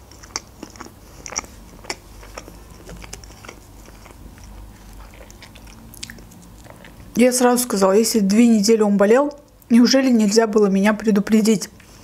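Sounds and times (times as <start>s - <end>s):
person chewing wetly: 0.0s - 7.2s.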